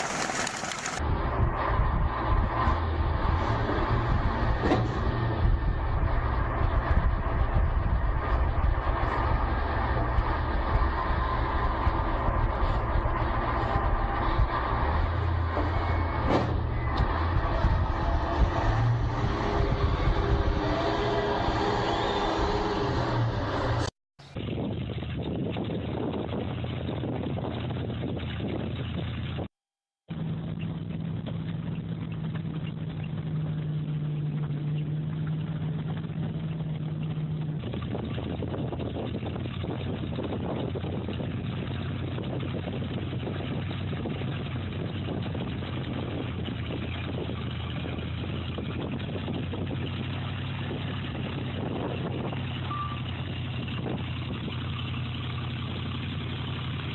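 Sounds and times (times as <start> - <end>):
machine engine running: 0.0 - 1.4
engine running: 0.0 - 29.5, 30.1 - 56.9
constant low hum: 30.1 - 56.9.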